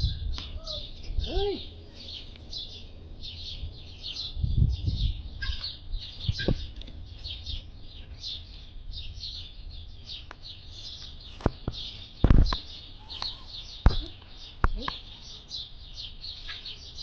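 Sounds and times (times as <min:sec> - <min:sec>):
small birds chirping: 0:00.0 - 0:17.0
sharp knocks: 0:13.8 - 0:14.1.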